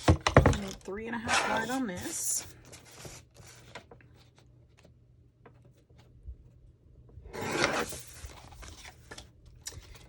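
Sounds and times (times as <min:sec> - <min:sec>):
loud rasping paper swipe: 0:07.4 - 0:08.3
paper being handled: 0:07.4 - 0:10.0.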